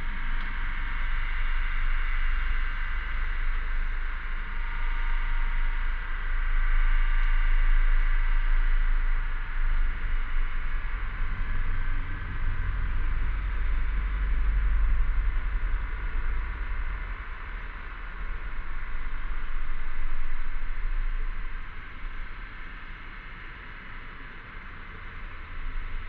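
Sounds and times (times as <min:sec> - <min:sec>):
low rumble: 0:08.9 - 0:26.0.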